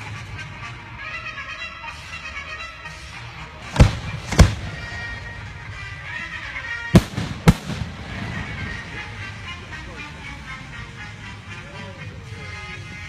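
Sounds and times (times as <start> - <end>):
music playing: 0.0 - 13.0
firework shells booming: 3.8 - 5.0, 7.0 - 8.6.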